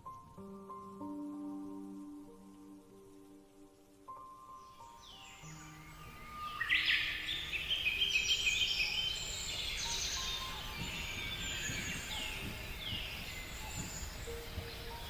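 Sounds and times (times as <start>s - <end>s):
soft background music: 0.0s - 15.0s
small birds chirping: 4.3s - 15.0s.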